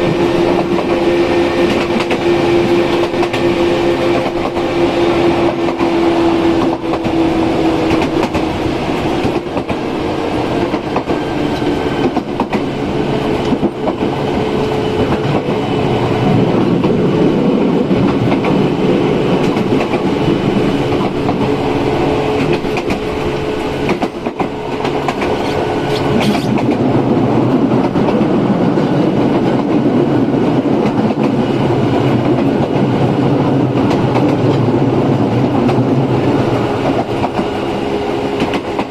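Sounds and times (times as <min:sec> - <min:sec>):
train running noise: 0:00.0 - 0:38.9
rail-joint clicks: 0:01.6 - 0:04.7, 0:05.4 - 0:09.8, 0:10.4 - 0:15.6, 0:17.9 - 0:21.6, 0:22.3 - 0:26.9, 0:32.0 - 0:34.7, 0:35.4 - 0:38.9.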